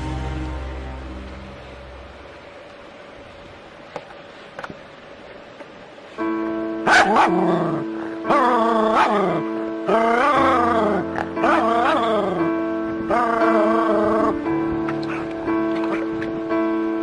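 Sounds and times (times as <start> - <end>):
background music: 0.0 - 2.6, 6.2 - 17.0
dog yelping and whining: 6.9 - 12.3.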